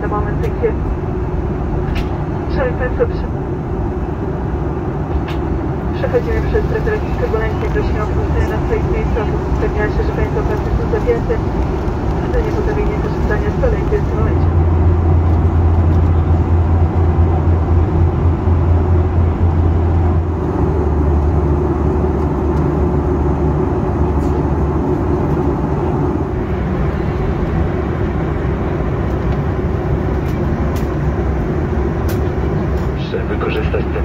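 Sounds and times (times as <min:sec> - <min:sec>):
airplane cabin engine drone: 0:00.0 - 0:34.0.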